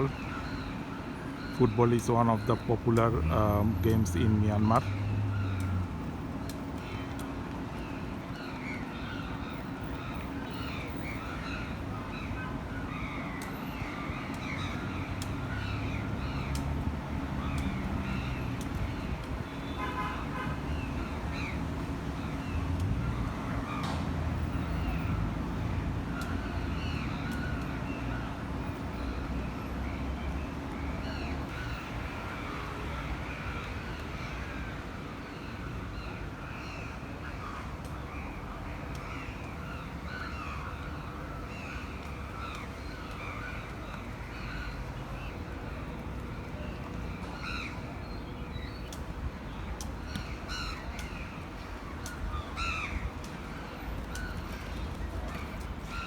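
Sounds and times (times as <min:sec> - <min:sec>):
birds calling and chattering: 0:00.0 - 0:56.0
street traffic rumble: 0:00.0 - 0:56.0.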